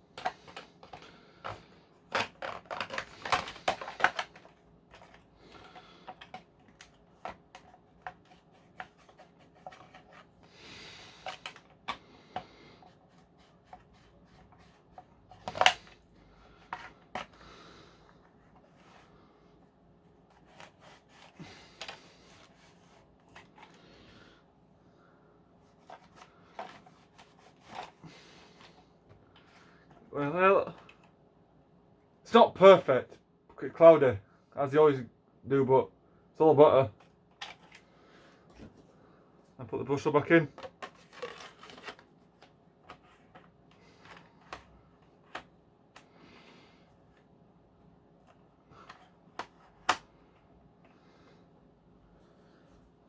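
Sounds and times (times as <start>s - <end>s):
plastic parts clicking: 0.2s - 10.1s.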